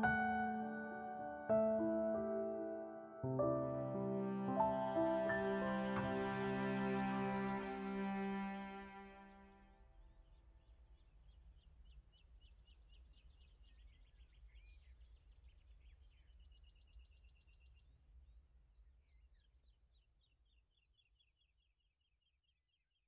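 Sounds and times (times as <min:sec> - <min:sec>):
small birds chirping: 0:10.1 - 0:22.8.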